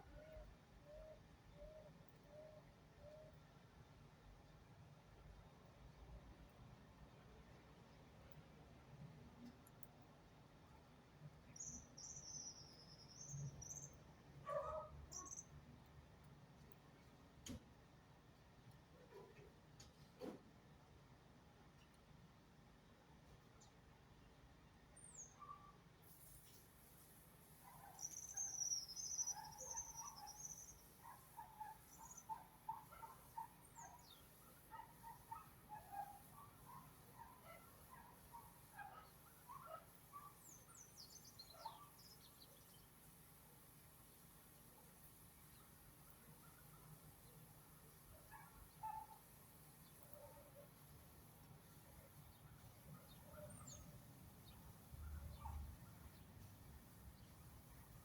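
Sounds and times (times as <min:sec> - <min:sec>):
small birds chirping: 0:11.5 - 0:14.1, 0:15.1 - 0:15.6, 0:27.6 - 0:58.0
short bird chirps: 0:27.7 - 0:30.9
bird warbling song: 0:27.9 - 0:30.9, 0:33.7 - 0:34.3.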